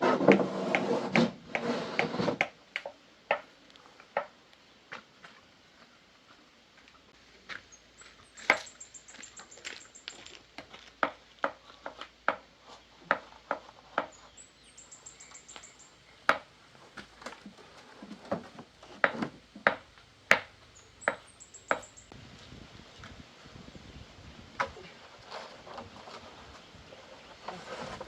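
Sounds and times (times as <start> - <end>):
sharp knocks and taps: 10.6 - 14.2.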